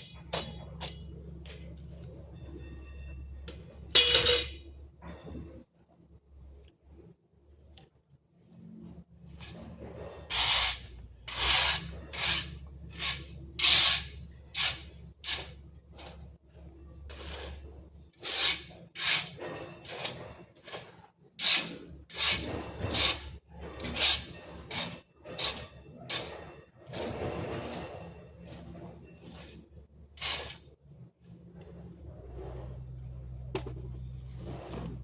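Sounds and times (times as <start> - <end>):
tool scraping in hissing strokes: 9.4 - 16.2, 18.2 - 35.0.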